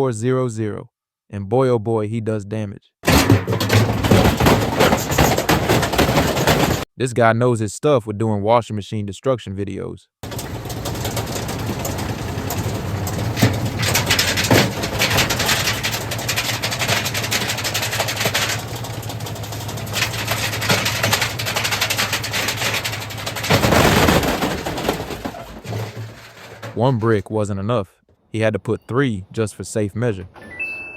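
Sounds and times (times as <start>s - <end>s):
bricks banging in washing machine: 3.0s - 6.9s, 10.2s - 26.8s
washing machine motor hum: 10.2s - 23.9s.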